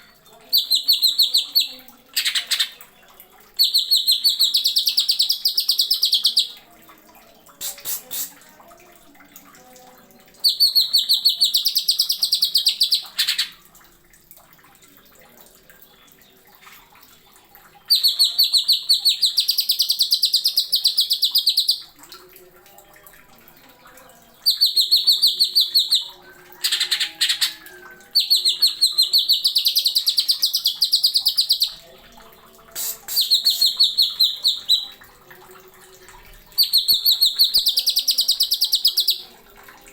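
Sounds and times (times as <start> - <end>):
bird singing rapid high notes: 32.8 - 35.0.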